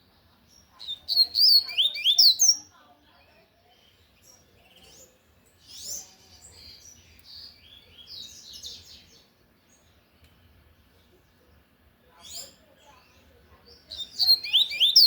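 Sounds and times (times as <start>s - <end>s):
bird whistling and trilling: 1.0s - 2.6s, 13.9s - 15.0s.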